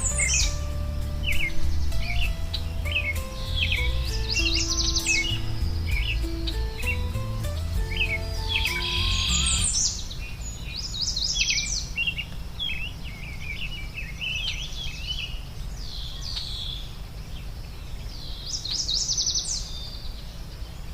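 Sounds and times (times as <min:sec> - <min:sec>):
low outdoor rumble: 0:00.0 - 0:10.9
songbirds singing and chirping: 0:00.0 - 0:20.9.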